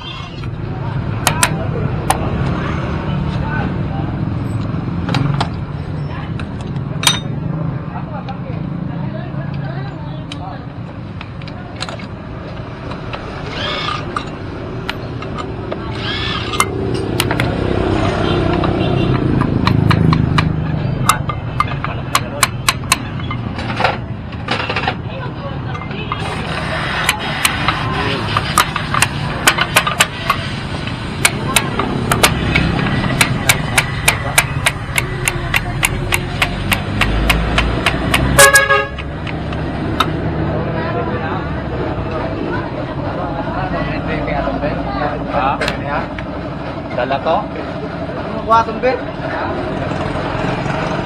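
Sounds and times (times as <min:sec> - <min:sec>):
sharp clicks and knocks: 0:01.2 - 0:02.6, 0:13.9 - 0:17.6, 0:18.4 - 0:25.1, 0:27.0 - 0:40.2
sharp taps: 0:18.5 - 0:23.4, 0:27.0 - 0:40.2
vehicle horn honk: 0:38.3 - 0:39.0.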